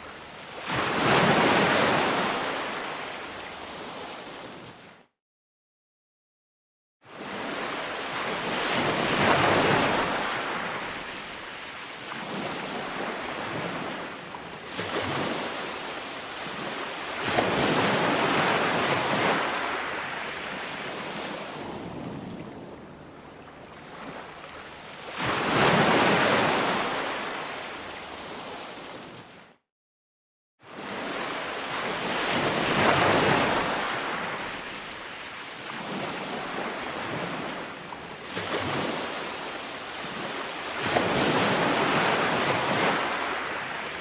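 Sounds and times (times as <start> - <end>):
ocean waves breaking on shore: 0.0 - 5.1, 7.0 - 29.6, 30.6 - 44.0.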